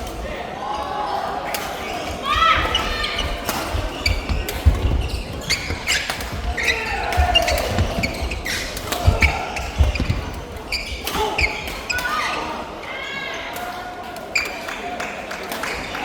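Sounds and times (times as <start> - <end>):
shoes squeaking on floor: 1.8 - 13.3.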